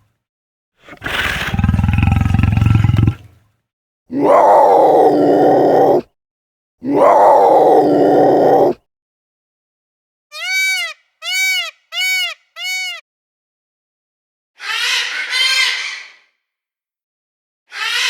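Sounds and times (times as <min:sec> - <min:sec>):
long harsh animal calls: 0:00.8 - 0:03.3, 0:04.2 - 0:06.0.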